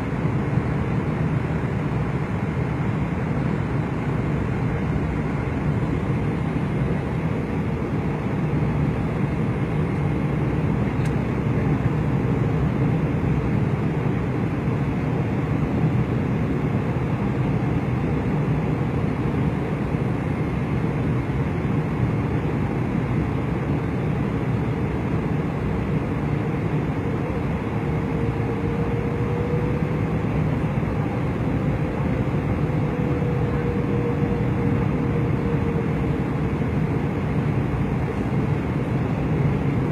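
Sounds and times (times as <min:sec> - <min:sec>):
jet cabin engine roar: 0:00.0 - 0:39.9.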